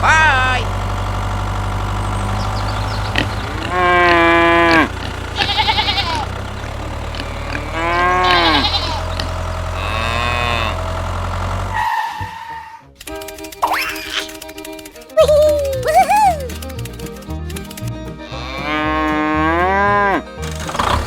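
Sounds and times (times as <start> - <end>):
low engine hum: 0.0 - 11.9
farm animals bleating: 2.3 - 11.0, 18.1 - 20.4.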